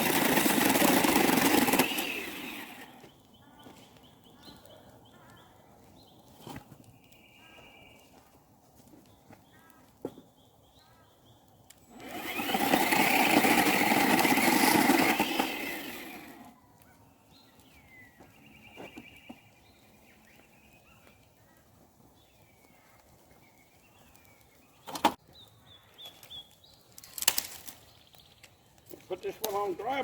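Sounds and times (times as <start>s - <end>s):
loud motor running: 0.0s - 3.0s, 11.9s - 16.5s.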